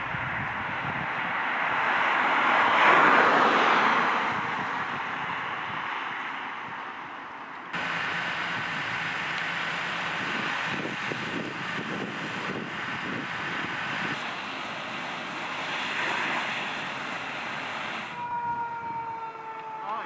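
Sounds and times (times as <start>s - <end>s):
vehicle engine whine: 6.6s - 20.0s
rushing noise: 7.8s - 19.0s.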